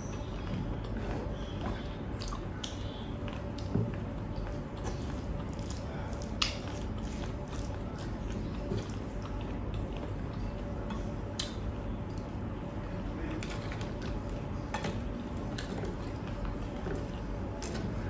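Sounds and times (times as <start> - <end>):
person chewing food: 0.0 - 12.8
faint steady hum: 0.0 - 18.0.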